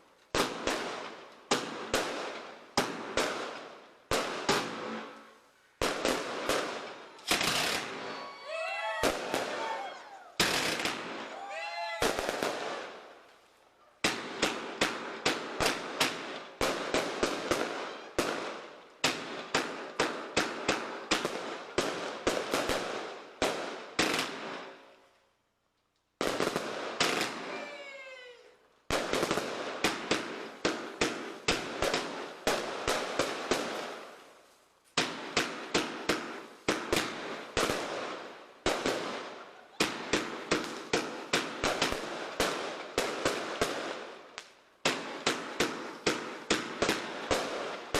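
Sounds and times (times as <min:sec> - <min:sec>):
firework bangs with crackle: 0:00.0 - 0:13.2, 0:14.0 - 0:24.8, 0:26.2 - 0:27.8, 0:28.9 - 0:47.9
firework whistling glide: 0:07.2 - 0:10.6.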